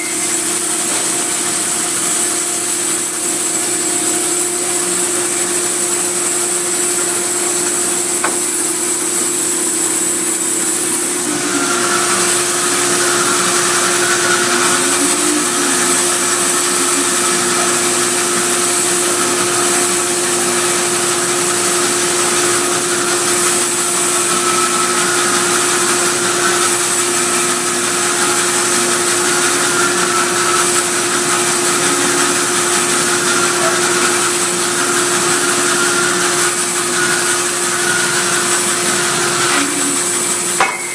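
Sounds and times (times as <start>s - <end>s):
electric motor hum: 0.0s - 40.9s
wavering whine: 0.0s - 40.9s.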